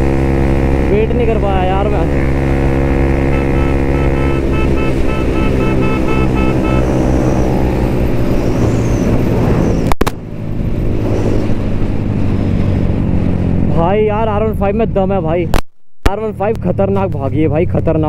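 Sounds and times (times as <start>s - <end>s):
motorcycle engine running: 0.0s - 9.3s
short beeps: 3.2s - 7.6s.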